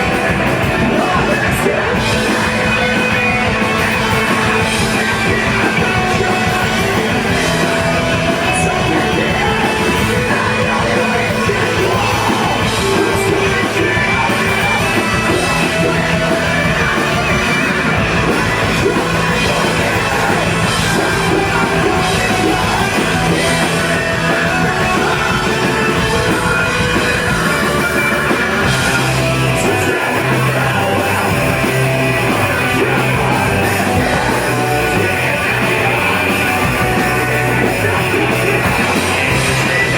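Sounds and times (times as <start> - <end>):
band playing live: 0.0 - 39.9.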